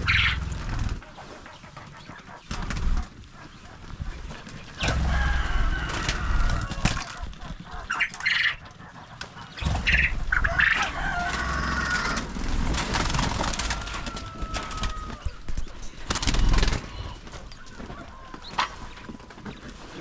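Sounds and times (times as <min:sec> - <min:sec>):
chicken squawks: 0:00.0 - 0:00.8, 0:04.8 - 0:15.4
rustling rumbling noise: 0:00.0 - 0:01.9
chickens clucking: 0:00.0 - 0:20.0.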